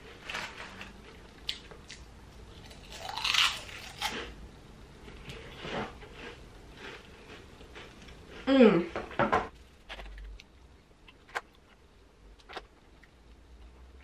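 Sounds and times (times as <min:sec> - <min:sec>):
person chewing food: 0:00.8 - 0:04.4, 0:05.2 - 0:08.5.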